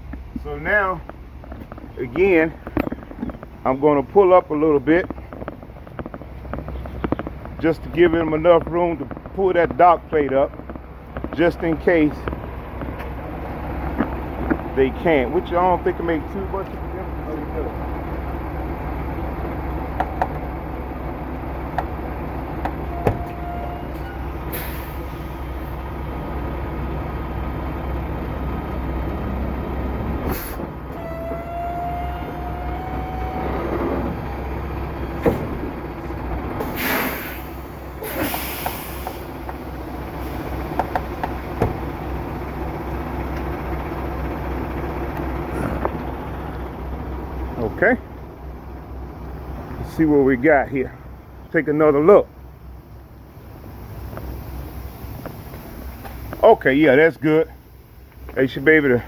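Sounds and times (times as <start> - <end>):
diesel truck engine idling: 0.0 - 59.0
air brakes hissing: 22.6 - 25.9, 30.2 - 42.0
rising whine: 28.2 - 49.8.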